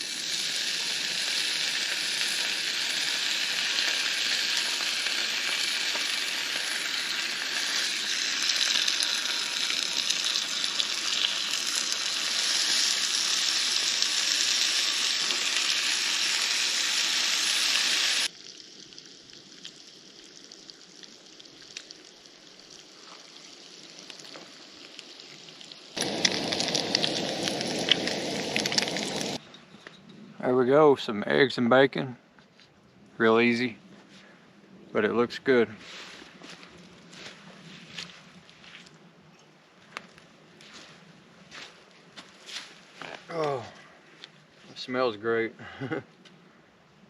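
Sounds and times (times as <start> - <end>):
bacon and eggs sizzling in a pan: 0.0 - 29.4.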